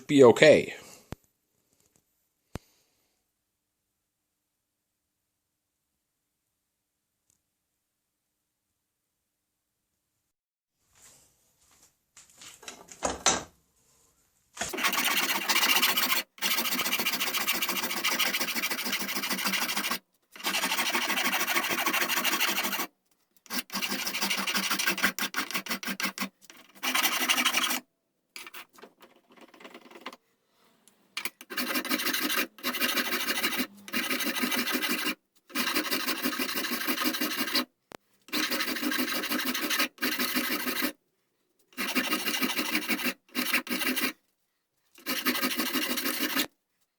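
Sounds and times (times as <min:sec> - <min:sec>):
wood rasp scraping wood: 0:14.7 - 0:22.9, 0:23.5 - 0:27.8, 0:28.4 - 0:28.8, 0:31.2 - 0:37.7, 0:38.3 - 0:41.0, 0:41.7 - 0:44.2, 0:45.0 - 0:46.5.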